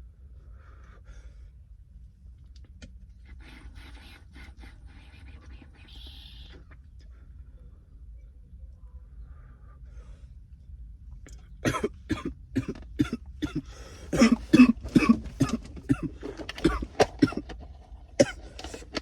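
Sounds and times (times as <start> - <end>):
low steady hum: 0.0 - 19.0
person coughing hard: 11.6 - 17.5, 18.2 - 19.0.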